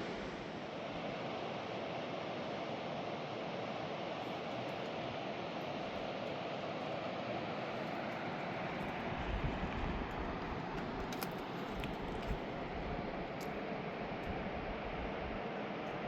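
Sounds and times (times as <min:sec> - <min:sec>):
low rumble: 0:00.0 - 0:00.8.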